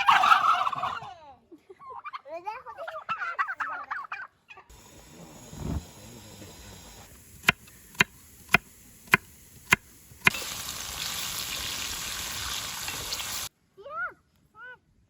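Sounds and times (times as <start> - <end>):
steady hiss: 4.7 - 13.5.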